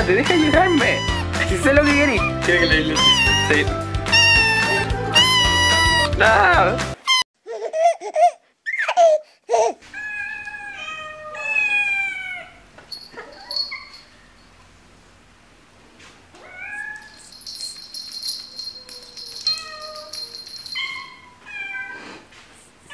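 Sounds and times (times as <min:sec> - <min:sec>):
kitten mewing: 0:00.2 - 0:03.5, 0:04.1 - 0:06.2.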